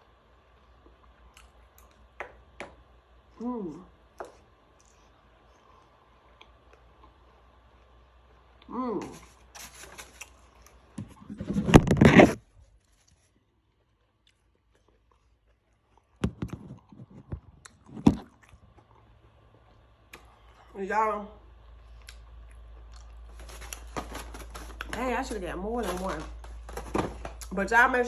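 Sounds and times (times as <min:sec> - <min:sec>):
person humming mm: 0:03.4 - 0:04.0, 0:08.7 - 0:09.3
crunchy chewing: 0:04.1 - 0:20.7, 0:21.8 - 0:25.0.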